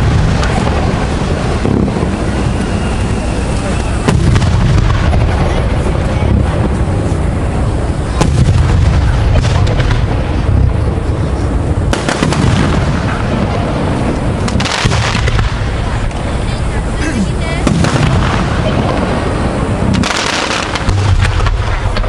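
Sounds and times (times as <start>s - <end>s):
sharp firework cracks: 0.0s - 16.8s, 17.6s - 22.0s
fireworks booming: 0.0s - 22.0s.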